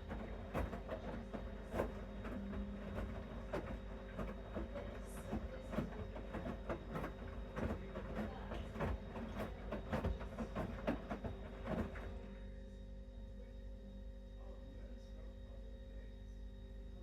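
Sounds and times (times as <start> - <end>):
washing machine drum thuds: 0.0 - 12.2
washing machine motor hum: 0.0 - 14.2.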